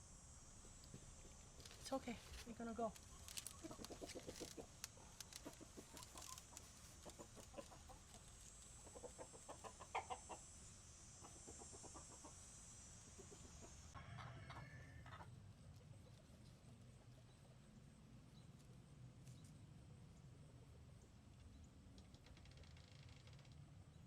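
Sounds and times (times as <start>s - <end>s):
high-pitched hiss: 0.0s - 15.2s
chickens clucking: 3.0s - 17.7s.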